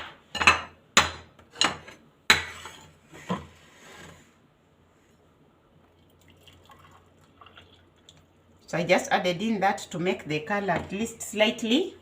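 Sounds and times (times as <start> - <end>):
kitchenware knocking and clinking: 0.0 - 2.6.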